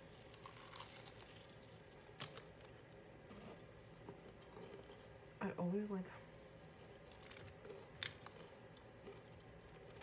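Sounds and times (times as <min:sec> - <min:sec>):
quiet chewing: 0:04.0 - 0:05.2, 0:06.8 - 0:10.0.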